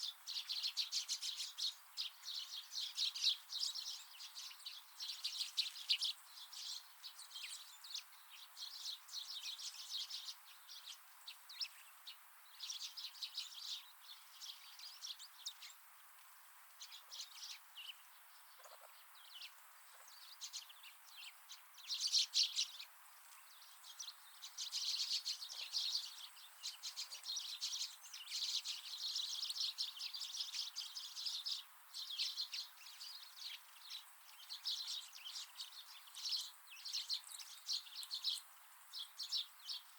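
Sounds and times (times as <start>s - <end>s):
faint outdoor hiss: 0.0s - 39.9s
wild birds chirping: 0.0s - 39.9s.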